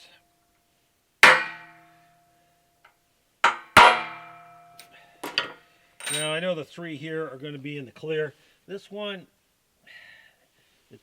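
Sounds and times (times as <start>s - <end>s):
hammer striking metal punch: 1.2s - 1.8s, 3.4s - 6.4s.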